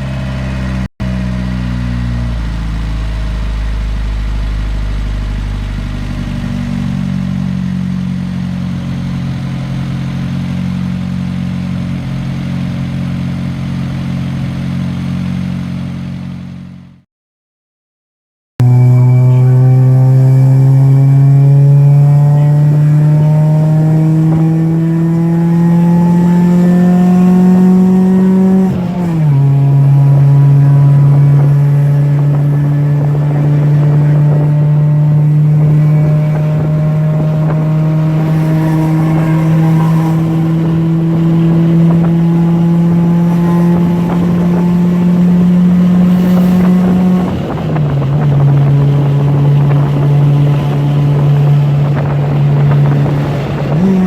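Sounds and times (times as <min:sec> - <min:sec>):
car engine revving under load: 0:18.6 - 0:54.0.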